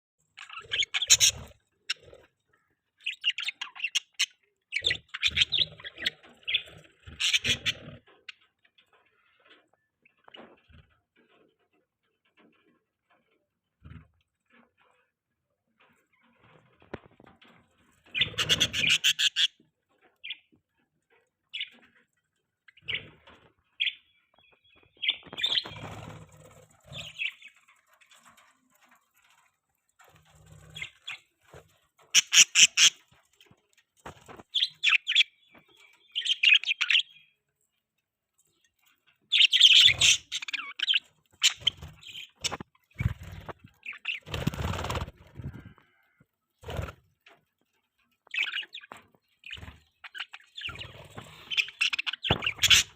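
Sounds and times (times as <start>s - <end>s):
budgerigars chirping and chattering: 0.4s - 8.5s, 18.0s - 19.6s, 20.2s - 20.5s, 21.4s - 22.0s, 22.6s - 28.5s, 30.1s - 37.4s, 39.3s - 45.8s, 48.3s - 52.9s.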